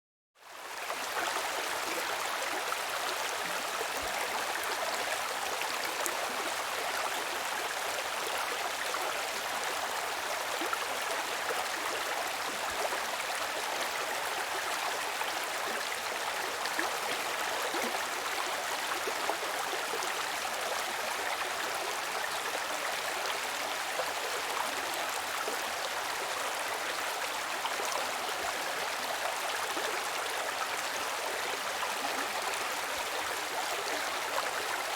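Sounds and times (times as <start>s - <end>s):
stream rushing and babbling: 0.4s - 34.9s.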